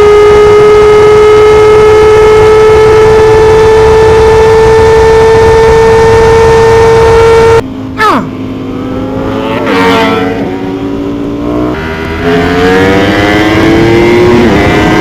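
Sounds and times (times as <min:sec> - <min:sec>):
motorcycle engine at high revs: 0:00.0 - 0:07.6, 0:08.3 - 0:15.0
wind rush: 0:12.4 - 0:15.0.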